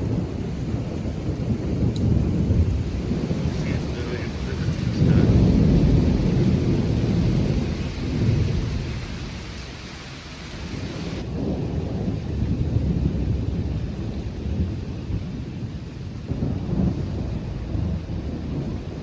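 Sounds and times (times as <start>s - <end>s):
rolling thunder rumbling: 0.0s - 19.0s.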